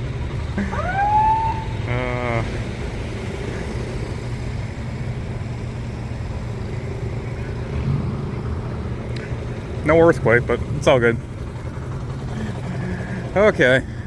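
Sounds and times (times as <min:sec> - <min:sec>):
vehicle engine rumbling: 0:00.0 - 0:14.0
siren blast: 0:00.6 - 0:02.1.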